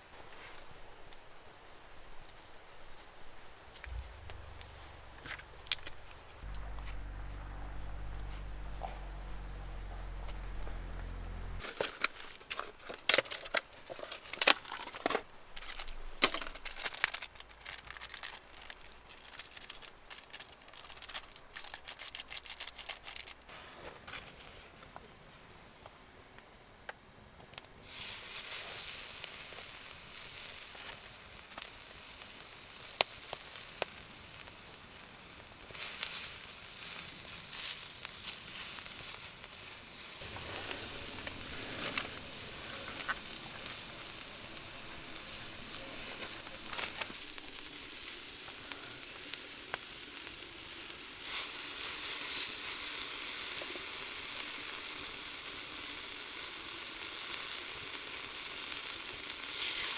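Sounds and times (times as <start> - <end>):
sharp popping of frying fat: 0.7 - 6.6, 11.6 - 23.6, 27.4 - 59.9
offal sizzling in a hot pan: 27.8 - 59.9.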